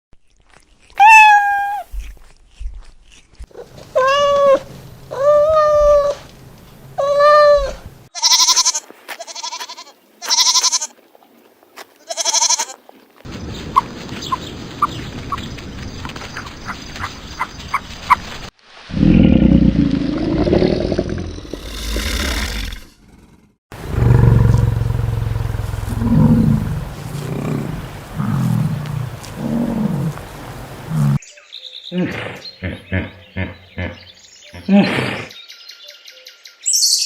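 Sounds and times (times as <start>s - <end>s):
animal drawn-out cries: 1.0s - 1.9s, 3.6s - 6.2s, 7.0s - 10.9s
rustling: 23.8s - 31.2s.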